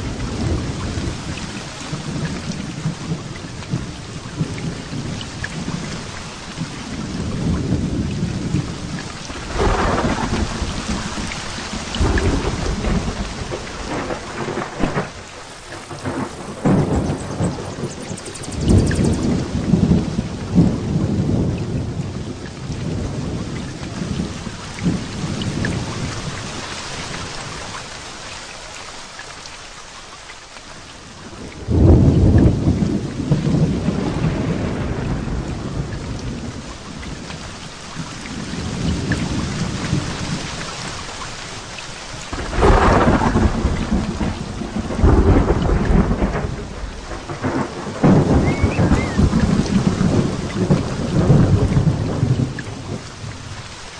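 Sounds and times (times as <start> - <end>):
thunder rumbling: 0.0 - 27.7, 31.2 - 40.8, 42.2 - 53.8
heavy rain: 0.0 - 53.9
loud thunder crash: 9.4 - 11.2, 12.0 - 21.6, 31.7 - 36.6, 42.3 - 52.6.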